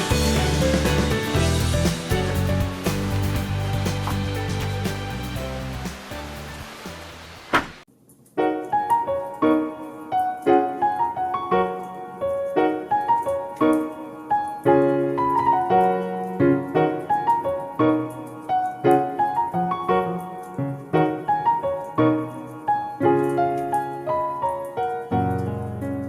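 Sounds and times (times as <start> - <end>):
piano music: 0.0 - 7.4, 8.4 - 26.0.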